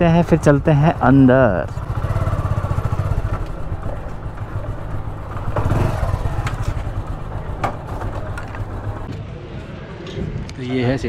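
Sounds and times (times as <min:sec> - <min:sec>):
motorcycle engine putter: 0:01.8 - 0:09.1.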